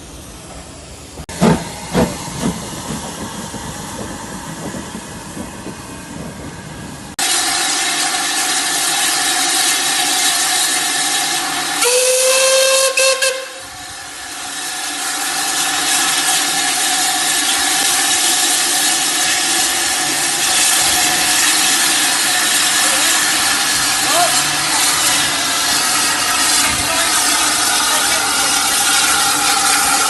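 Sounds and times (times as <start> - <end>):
steam hissing: 0.0 - 30.0
steam whistle blast: 11.8 - 13.9.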